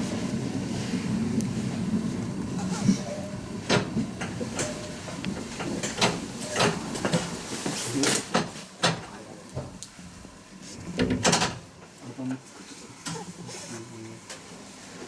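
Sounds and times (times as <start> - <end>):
train clanks and knocks: 0.0 - 9.8, 10.9 - 12.0
train running slowly: 0.0 - 11.0, 11.6 - 15.0.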